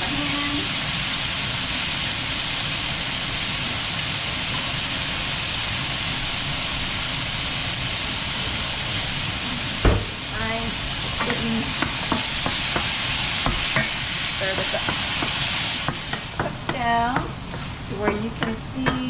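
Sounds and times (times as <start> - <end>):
tomatoes sizzling in oil: 0.0 - 19.0
sharp knock: 9.8 - 10.4.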